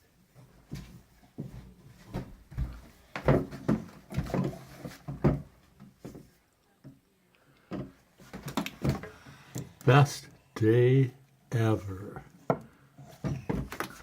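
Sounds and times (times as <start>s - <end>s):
thumps and knocks: 0.7s - 6.3s, 7.7s - 9.2s, 12.4s - 14.0s.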